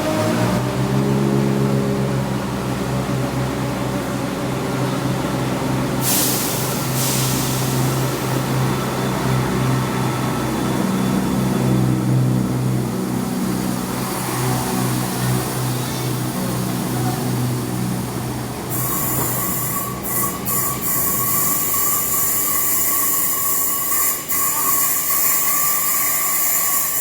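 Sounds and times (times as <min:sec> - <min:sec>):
train low hum: 0:00.0 - 0:26.9
air hiss: 0:06.0 - 0:08.5.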